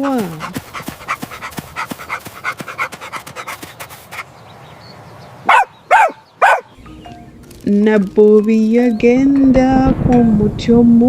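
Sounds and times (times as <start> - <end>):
dog panting: 0.0 - 4.4
dog barking: 5.4 - 6.8.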